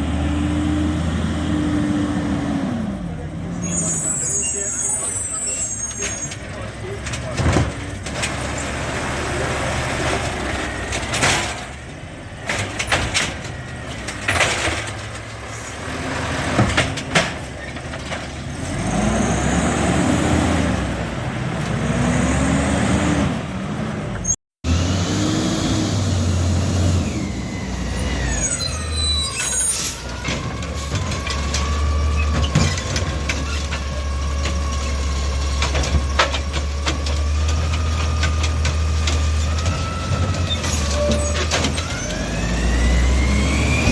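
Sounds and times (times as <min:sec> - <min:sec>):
diesel engine revving: 0:00.0 - 0:05.8, 0:06.4 - 0:43.9
truck engine droning: 0:00.0 - 0:43.9
metal clanks and knocks: 0:06.3 - 0:08.6, 0:10.1 - 0:15.5, 0:16.5 - 0:18.5.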